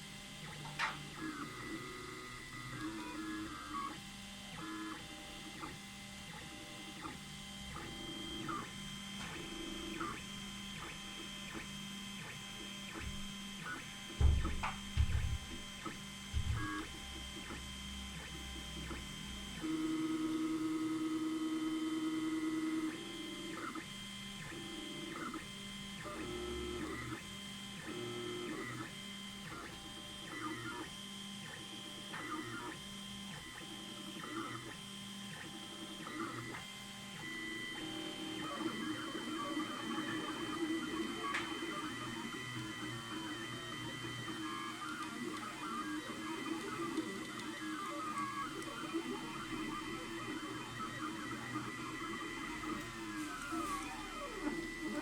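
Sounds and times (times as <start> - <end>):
stepper motors whining: 37.2 - 55.0.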